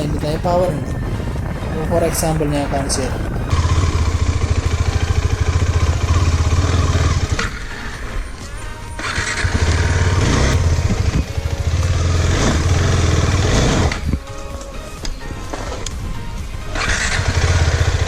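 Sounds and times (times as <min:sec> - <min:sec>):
motorcycle engine pulling at low revs: 0:00.0 - 0:14.6, 0:15.2 - 0:18.0.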